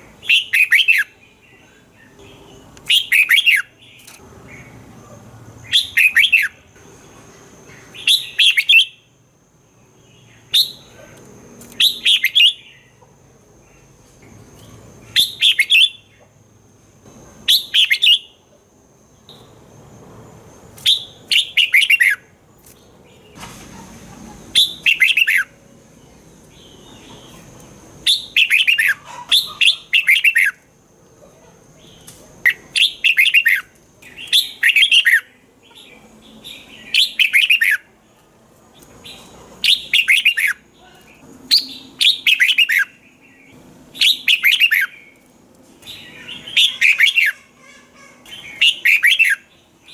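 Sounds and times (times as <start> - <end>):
bird singing whistled notes: 0.2 - 4.8, 5.6 - 6.6, 7.9 - 9.1, 10.1 - 10.9, 11.8 - 12.9, 14.6 - 16.1, 17.4 - 18.4, 20.8 - 22.3, 24.5 - 25.6, 28.0 - 30.6, 31.9 - 37.9, 39.0 - 40.6, 41.5 - 45.2, 48.3 - 49.9.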